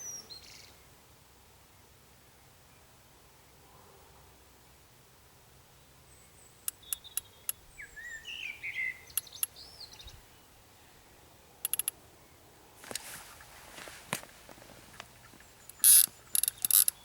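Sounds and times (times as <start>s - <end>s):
songbird whistled song: 0.0s - 0.8s, 5.8s - 11.0s
bird sharp ticks: 9.1s - 9.6s, 11.6s - 12.0s, 14.9s - 17.0s.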